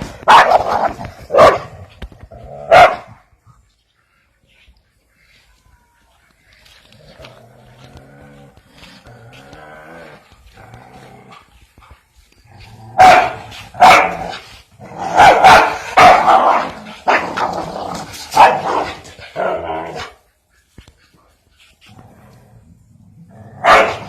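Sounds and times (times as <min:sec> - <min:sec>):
dog barking loudly: 0:00.2 - 0:01.8, 0:02.7 - 0:03.2, 0:13.0 - 0:14.4, 0:15.0 - 0:17.5, 0:18.3 - 0:20.1, 0:23.6 - 0:24.0.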